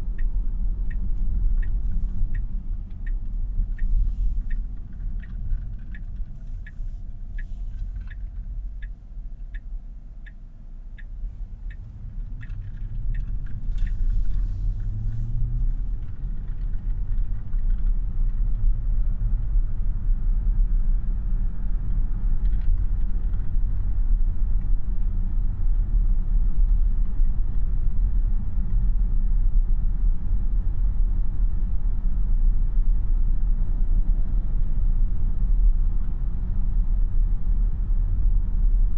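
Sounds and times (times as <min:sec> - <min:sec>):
turn signal ticking: 0:00.0 - 0:18.6
road and tyre rumble: 0:00.0 - 0:38.9.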